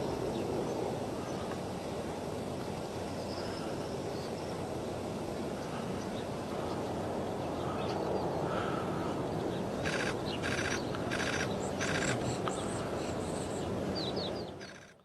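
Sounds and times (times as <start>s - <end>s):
steady noisy roar: 0.0s - 15.0s
bird giving harsh calls: 9.9s - 12.4s.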